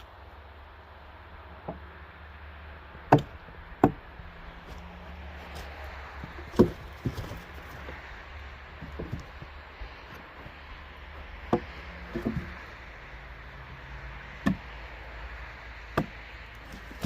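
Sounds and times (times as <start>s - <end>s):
logs knocking together: 3.0s - 15.0s, 15.8s - 17.0s.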